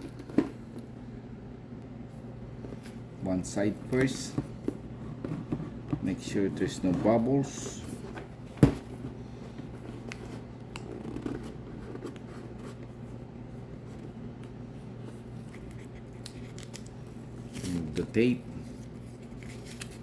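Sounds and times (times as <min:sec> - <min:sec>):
steady low hum: 0:00.0 - 0:20.0
handling and rubbing sounds: 0:03.7 - 0:13.2.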